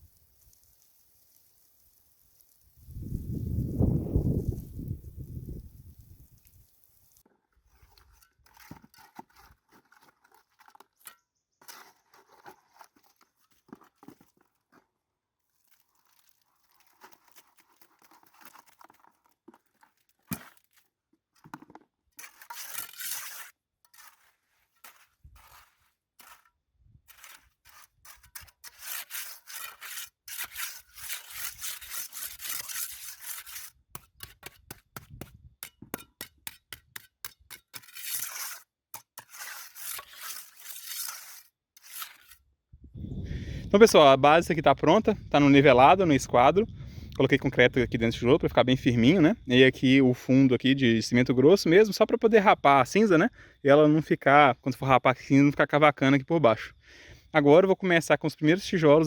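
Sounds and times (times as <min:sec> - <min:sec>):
masonry tools scraping wet concrete: 0:00.0 - 0:42.5.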